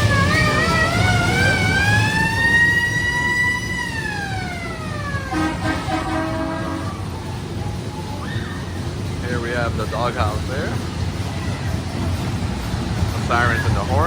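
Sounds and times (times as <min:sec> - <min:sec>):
warbling siren wailing: 0:00.0 - 0:08.8
horn blast: 0:05.1 - 0:07.2.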